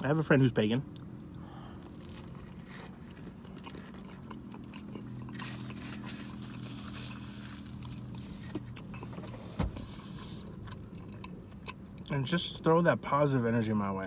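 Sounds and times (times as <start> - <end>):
steady low hum: 0.0 - 13.9
chewing and biting pizza: 0.9 - 9.1, 9.8 - 12.6.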